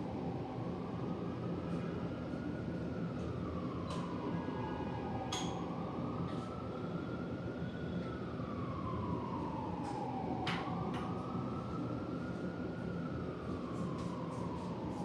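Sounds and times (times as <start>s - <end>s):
siren wailing: 3.3s - 15.0s.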